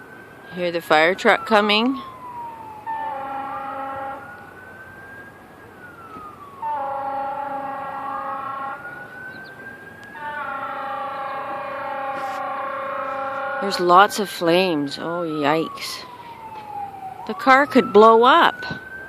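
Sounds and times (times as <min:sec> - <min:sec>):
fire engine siren wailing: 0:00.0 - 0:19.0
fire engine horn blasts: 0:02.8 - 0:04.5, 0:06.6 - 0:15.0.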